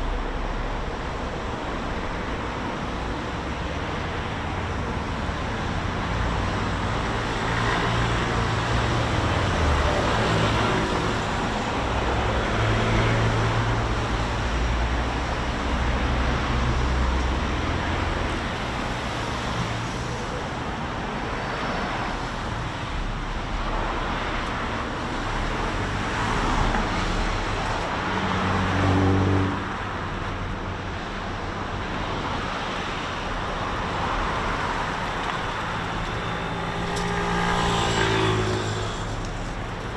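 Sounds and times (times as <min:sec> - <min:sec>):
road traffic passing: 0:00.0 - 0:39.9
loud engine passing: 0:34.1 - 0:39.9.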